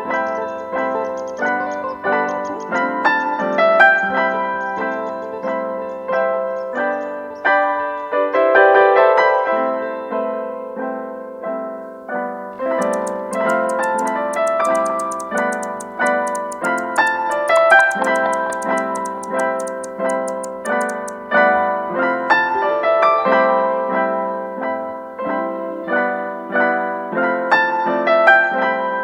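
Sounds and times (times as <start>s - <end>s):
fast high ticking: 12.8s - 21.2s.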